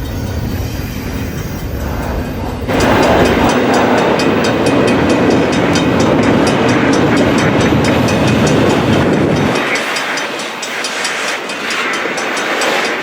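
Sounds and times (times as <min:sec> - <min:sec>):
steel wheels rumbling on rail: 0:00.0 - 0:13.0
rapid high ticking: 0:02.7 - 0:13.0.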